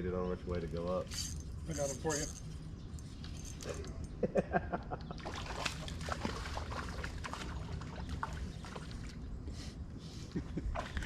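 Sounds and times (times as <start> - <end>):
water splashing: 5.2 - 9.2.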